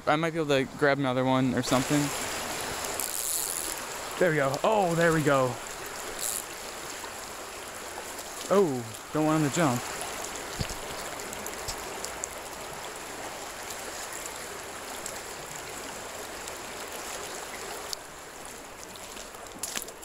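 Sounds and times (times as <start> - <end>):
creek water flowing: 0.0 - 20.0.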